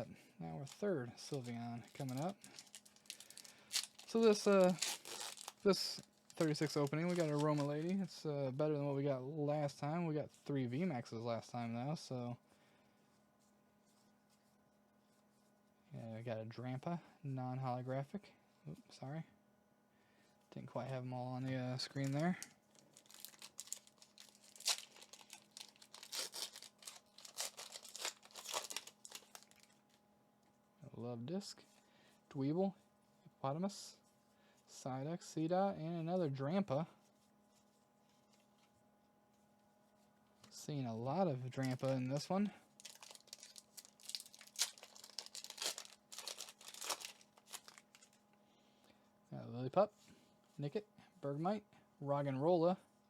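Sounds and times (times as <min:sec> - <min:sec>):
foil wrapper tearing and crinkling: 0:00.6 - 0:08.1, 0:21.9 - 0:29.8, 0:41.6 - 0:42.2, 0:42.8 - 0:48.2.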